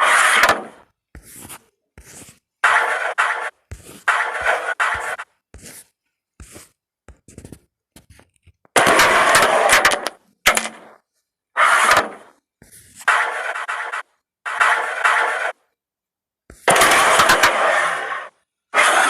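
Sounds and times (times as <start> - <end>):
carrom pieces sliding on board: 0.0 - 11.0, 11.6 - 15.7.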